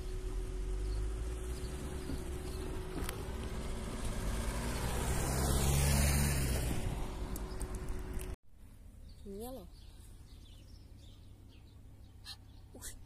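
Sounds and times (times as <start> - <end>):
road vehicle passing by: 0.0 - 8.4.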